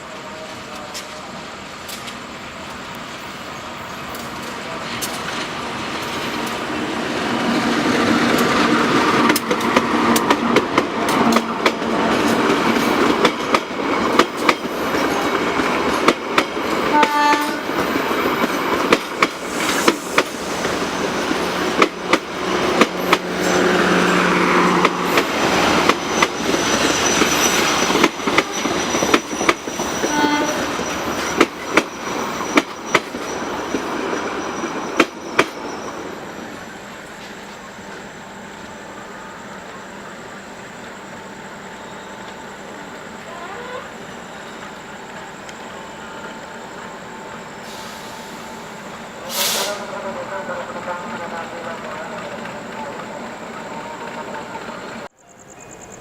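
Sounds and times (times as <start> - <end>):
train wheels clattering on rails: 4.0 - 38.0.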